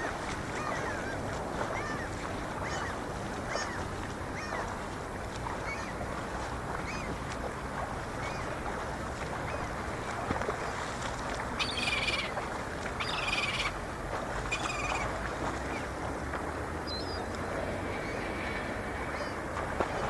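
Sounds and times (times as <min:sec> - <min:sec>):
gulls calling: 0:00.0 - 0:10.6, 0:11.5 - 0:13.8, 0:14.5 - 0:16.0.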